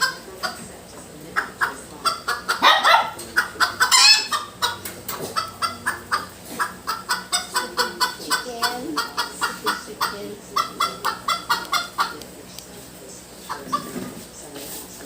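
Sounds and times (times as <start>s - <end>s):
bird squawking and chattering: 1.4s - 12.2s.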